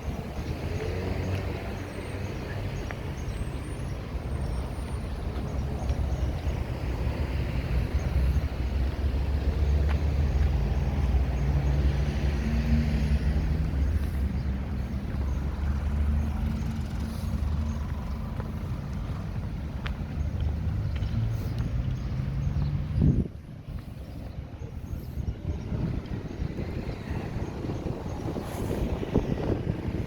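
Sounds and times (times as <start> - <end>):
heavy vehicle engine humming: 0.0 - 30.0.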